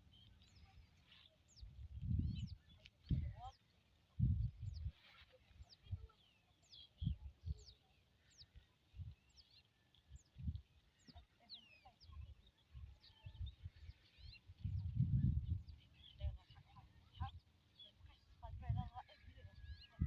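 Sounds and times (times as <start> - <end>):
small birds chirping: 0.0 - 20.0
low wind rumble on microphone: 1.5 - 5.0, 6.9 - 9.4, 10.0 - 11.2, 12.0 - 20.0.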